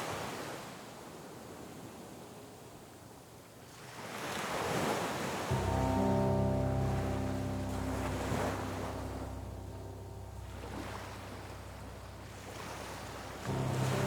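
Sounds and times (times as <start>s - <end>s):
ocean surf washing ashore: 3.6s - 14.0s
soft background music: 5.5s - 14.0s.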